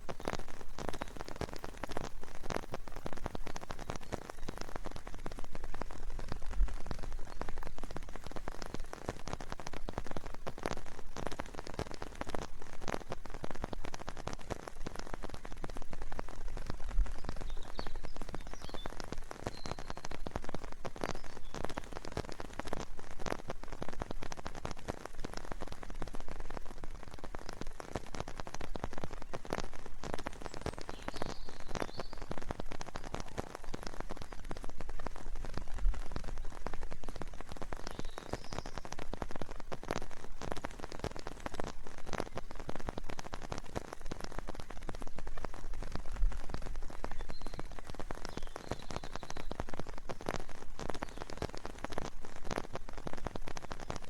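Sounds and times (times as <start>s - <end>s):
steady rain: 0.0s - 54.0s
faint bird chirps: 17.2s - 20.2s, 30.4s - 34.7s, 37.1s - 38.9s, 46.9s - 49.7s.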